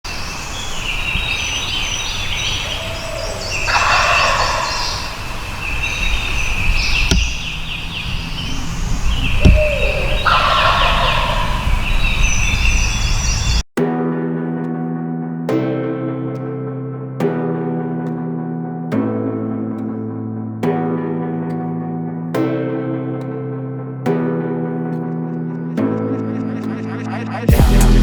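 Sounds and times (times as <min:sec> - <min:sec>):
turkeys gobbling: 0:00.6 - 0:12.9.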